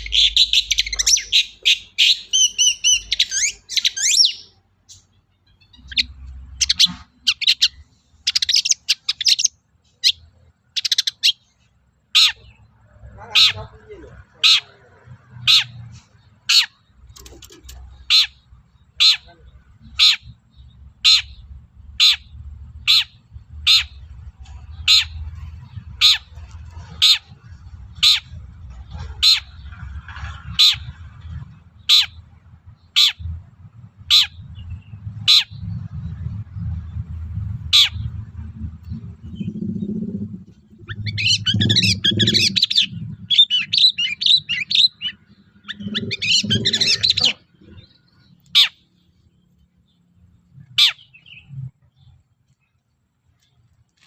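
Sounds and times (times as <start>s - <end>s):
bird rapid chattering song: 0.0s - 53.7s
low rumble: 19.3s - 52.3s.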